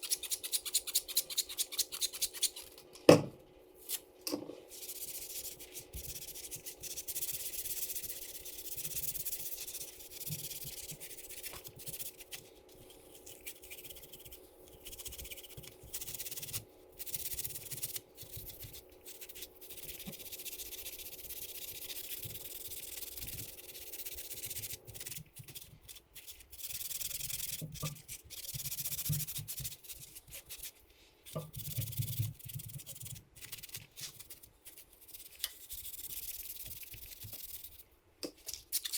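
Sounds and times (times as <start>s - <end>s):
brush scrubbing metal: 4.8s - 37.8s.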